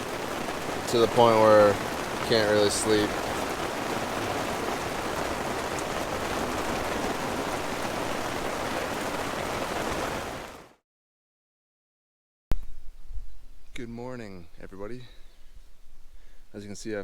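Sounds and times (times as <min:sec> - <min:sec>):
heavy rain on a tent: 0:00.0 - 0:10.8.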